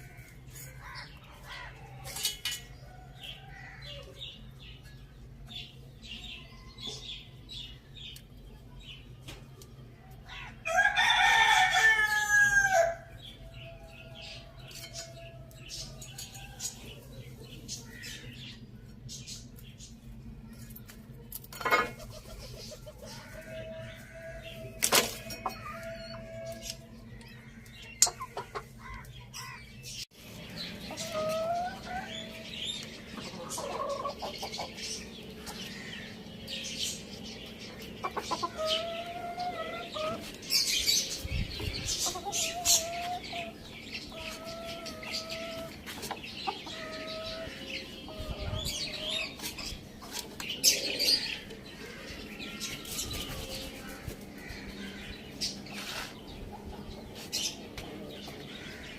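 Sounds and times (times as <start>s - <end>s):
chickens clucking: 13.3s - 58.9s.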